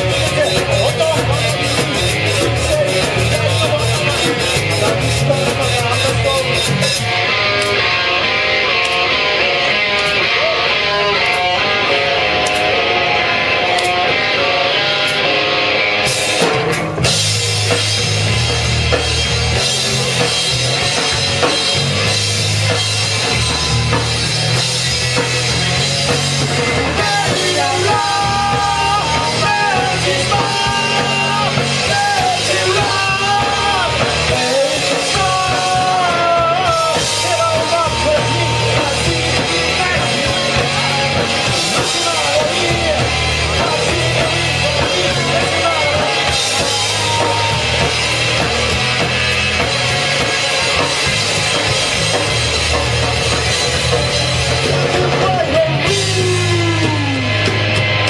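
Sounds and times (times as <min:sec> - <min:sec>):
person singing and shouting: 0:00.0 - 0:07.9, 0:26.6 - 0:48.8, 0:54.8 - 0:57.8
bass guitar: 0:00.0 - 0:58.0
drum kit: 0:00.0 - 0:58.0
electric guitar: 0:00.0 - 0:58.0.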